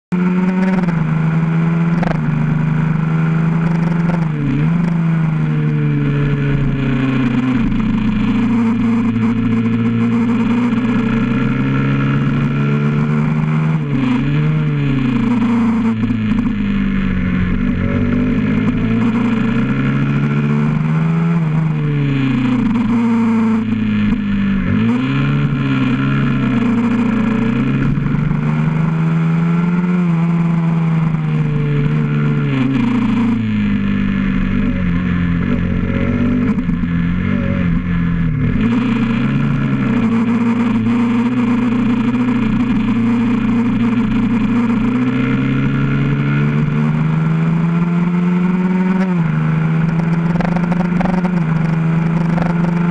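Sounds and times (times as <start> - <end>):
motorcycle engine revving: 0.1 - 52.9.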